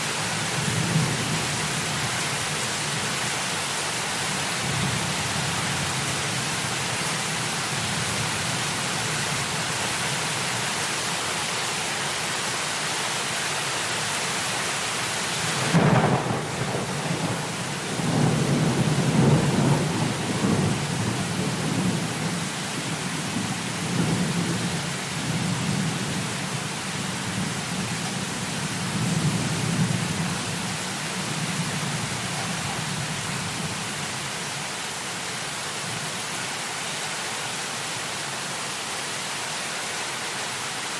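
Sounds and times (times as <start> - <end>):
heavy rain: 0.0 - 40.9
thunderclap: 15.6 - 20.9
rolling thunder: 15.6 - 22.4.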